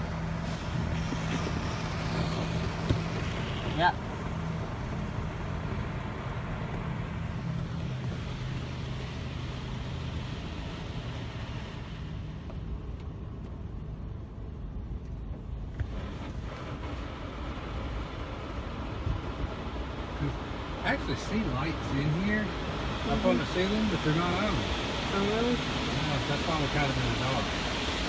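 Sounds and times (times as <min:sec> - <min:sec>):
water spray hissing: 0:21.1 - 0:28.0.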